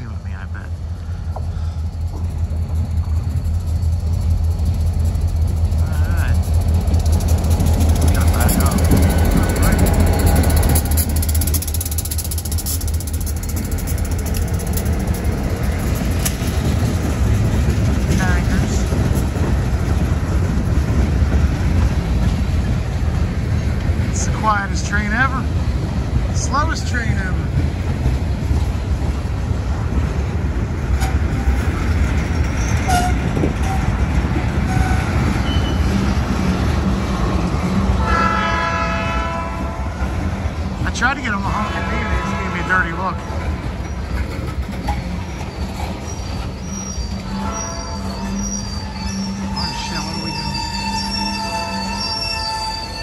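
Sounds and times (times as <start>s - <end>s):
low vehicle rumble: 0.0s - 24.2s
train rumbling: 0.0s - 53.0s
train horn long note: 38.0s - 40.1s, 41.5s - 42.8s, 47.3s - 48.2s.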